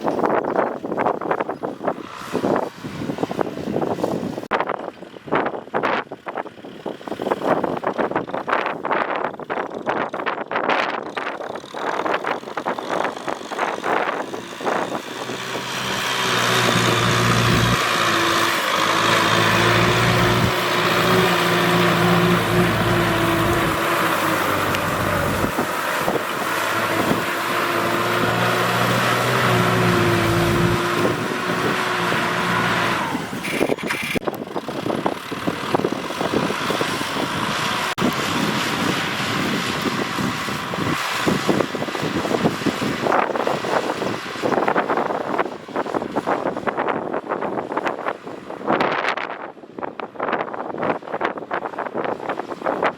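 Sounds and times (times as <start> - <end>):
tractor engine running: 4.7 - 46.6.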